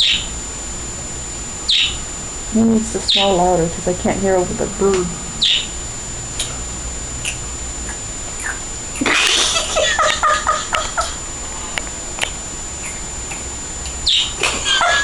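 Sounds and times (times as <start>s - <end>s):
bird chirping: 0.0s - 0.3s, 1.7s - 2.0s, 3.0s - 3.4s, 5.4s - 5.8s, 14.0s - 14.4s.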